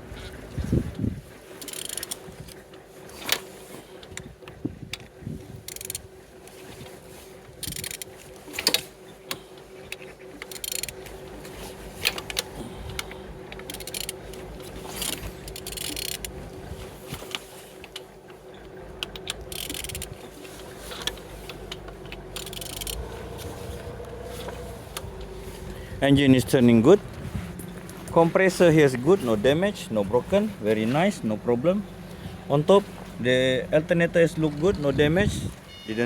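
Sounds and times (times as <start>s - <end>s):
metallic clicks and scrapes: 1.6s - 3.5s, 5.7s - 6.1s, 7.6s - 16.4s, 17.1s - 25.8s
faint steady hum: 3.3s - 36.0s.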